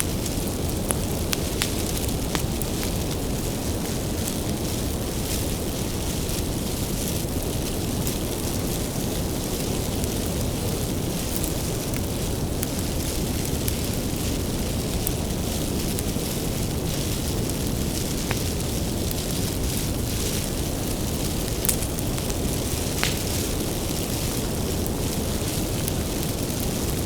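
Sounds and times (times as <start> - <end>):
fire crackling and popping: 0.0 - 27.0
wood fire roaring: 0.0 - 27.0.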